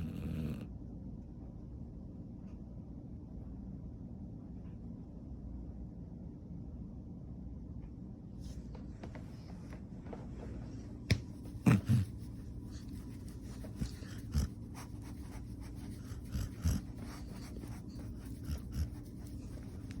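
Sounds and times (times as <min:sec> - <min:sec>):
dog snoring: 0:00.0 - 0:00.7, 0:11.6 - 0:12.1, 0:13.4 - 0:20.0
steady low hum: 0:00.0 - 0:20.0.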